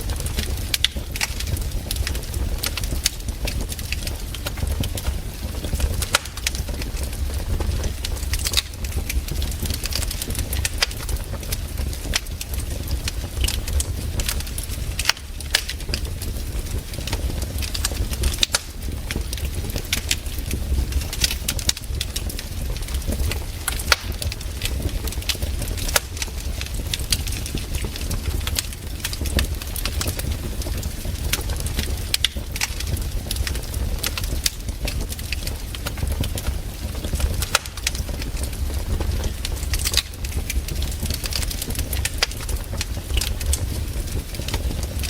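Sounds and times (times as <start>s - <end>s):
campfire crackling: 0.0s - 45.0s
sharp pops of fire: 0.0s - 45.0s.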